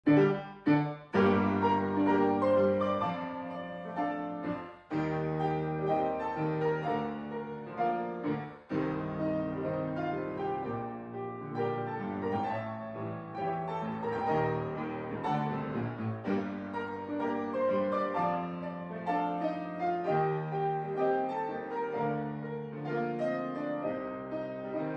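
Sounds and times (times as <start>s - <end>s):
piano music: 0.0s - 24.9s.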